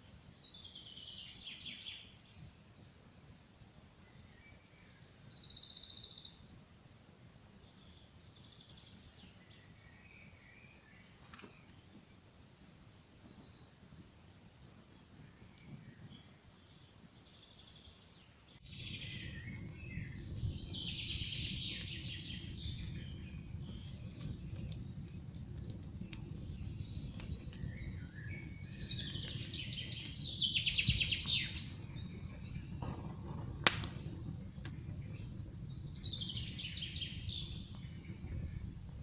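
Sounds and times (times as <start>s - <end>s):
birds singing: 15.2s - 39.0s
campfire crackling and popping: 18.6s - 39.0s.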